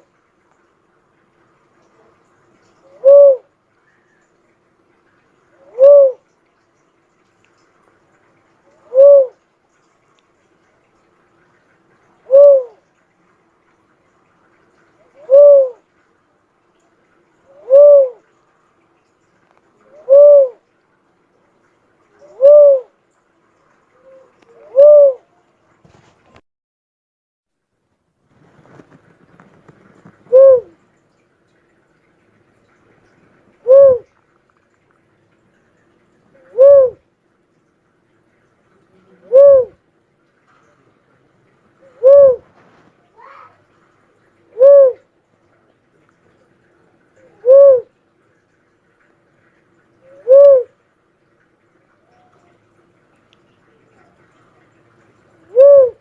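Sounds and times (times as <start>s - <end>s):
dove cooing: 2.8s - 3.5s, 5.6s - 6.2s, 8.7s - 9.4s, 12.2s - 12.8s, 15.0s - 15.8s, 17.5s - 18.3s, 19.8s - 20.6s, 22.2s - 22.9s, 23.9s - 25.3s, 30.1s - 30.8s, 33.6s - 34.1s, 36.3s - 37.0s, 39.2s - 39.8s, 41.8s - 42.6s, 44.5s - 45.1s, 47.2s - 48.0s, 50.0s - 50.8s, 55.4s - 56.0s
faint higher bird call: 5.6s - 6.2s, 15.0s - 15.8s, 17.5s - 18.2s, 19.8s - 20.6s, 24.0s - 25.4s, 30.3s - 30.8s, 36.4s - 37.0s, 39.3s - 39.8s, 41.8s - 42.5s, 44.6s - 45.0s
faint clicks: 6.3s - 7.8s, 9.7s - 10.5s, 53.1s - 54.7s.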